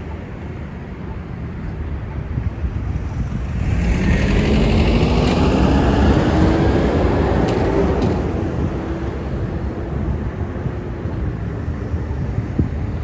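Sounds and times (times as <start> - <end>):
bus accelerating past: 0.0 - 13.0.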